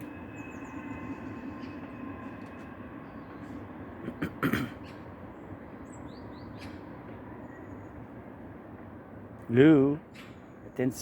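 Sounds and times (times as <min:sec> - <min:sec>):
outdoor background rumble: 0:00.0 - 0:11.0
small birds chirping: 0:04.8 - 0:08.2.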